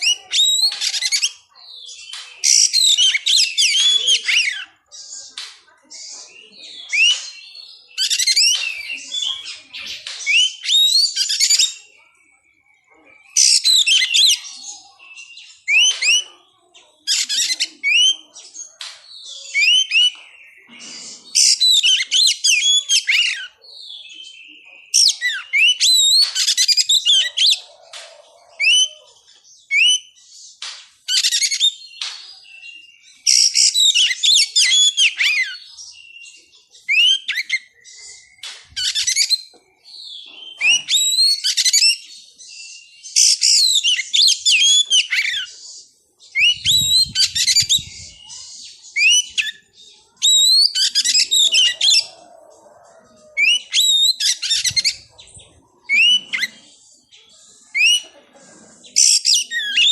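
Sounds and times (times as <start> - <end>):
bird singing whistled phrases: 6.0 - 16.3, 17.1 - 18.3, 19.2 - 20.7, 29.6 - 30.2, 31.1 - 45.5, 46.3 - 52.1, 53.4 - 55.2, 55.9 - 56.6.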